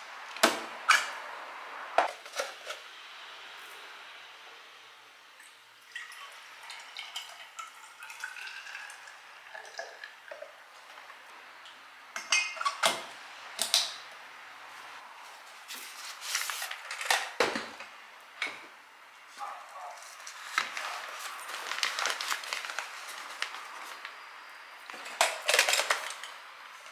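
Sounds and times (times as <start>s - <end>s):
water running: 5.8s - 12.8s
dishes and cutlery clinking: 12.2s - 13.0s.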